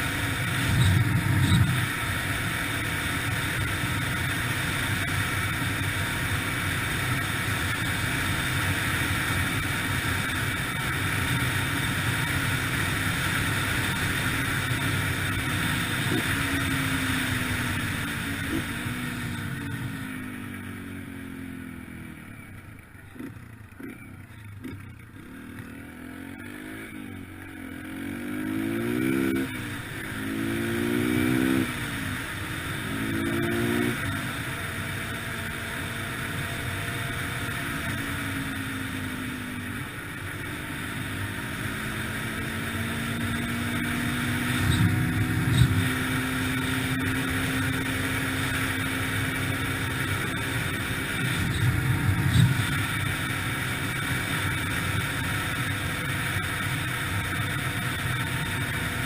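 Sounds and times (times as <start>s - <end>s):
rush of wind noise: 0.0s - 2.0s
dirt bike engine revving: 0.0s - 20.8s, 23.2s - 38.8s, 40.0s - 58.9s.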